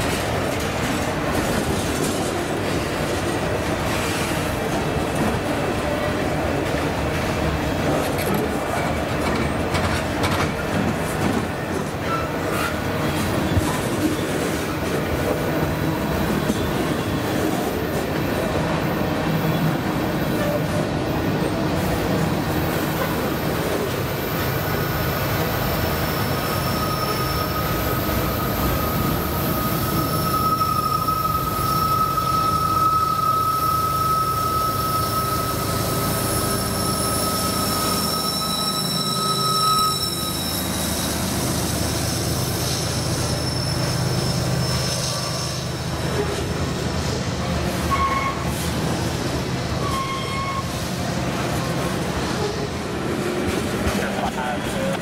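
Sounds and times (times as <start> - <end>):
freight train rolling past: 0.0 - 55.0
high wheel squeal: 24.8 - 46.4, 49.8 - 50.8.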